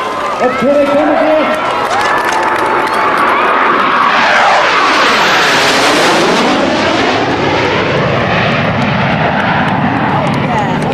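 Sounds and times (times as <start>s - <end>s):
jet engines passing overhead: 0.0s - 10.9s.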